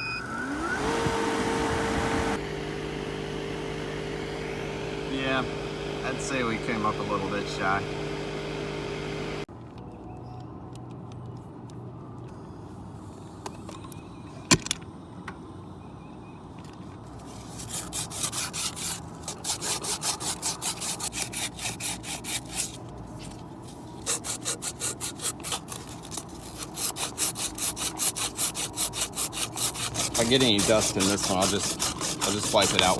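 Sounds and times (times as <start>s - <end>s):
hand saw cutting metal tubing: 17.3s - 22.8s, 24.0s - 32.9s.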